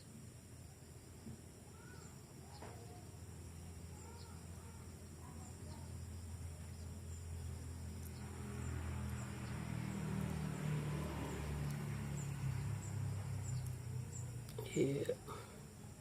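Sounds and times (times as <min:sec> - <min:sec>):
faint bird chirps: 0:01.2 - 0:08.4
insect ticks: 0:03.9 - 0:15.2.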